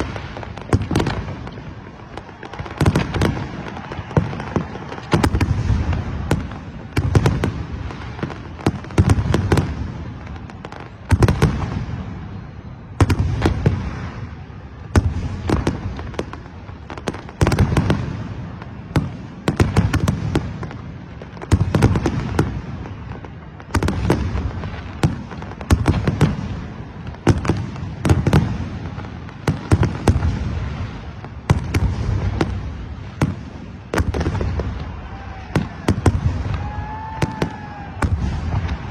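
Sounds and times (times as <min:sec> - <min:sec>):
fireworks bursting: 0:00.0 - 0:38.9.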